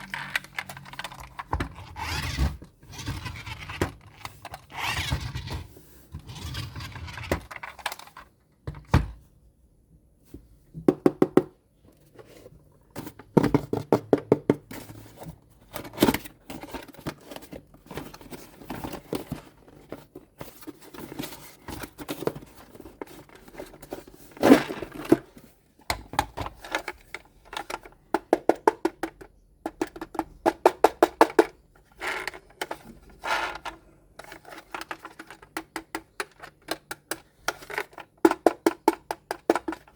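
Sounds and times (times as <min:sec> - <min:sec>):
plastic toy parts clicking: 0:00.0 - 0:02.1.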